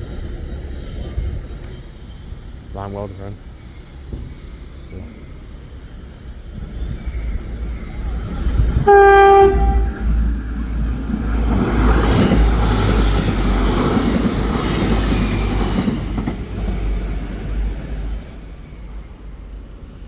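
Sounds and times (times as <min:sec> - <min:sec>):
train rumble and wheel noise: 0:00.0 - 0:20.0
train horn blast: 0:08.7 - 0:10.4.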